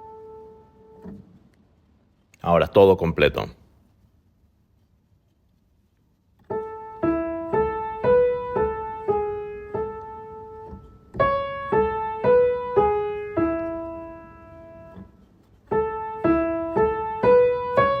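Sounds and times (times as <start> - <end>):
piano melody: 0.0 - 1.4, 6.4 - 18.0.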